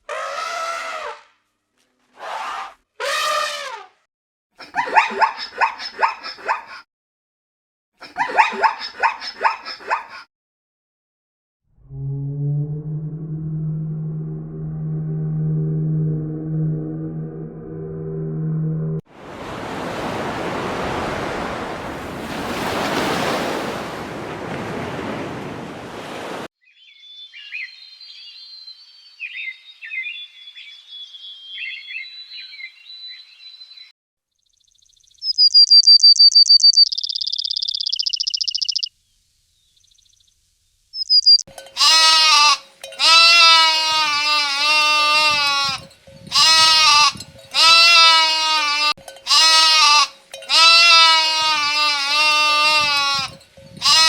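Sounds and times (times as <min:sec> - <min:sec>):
small birds chirping: 0:26.6 - 0:41.4
goat bleating: 0:41.8 - 0:54.0.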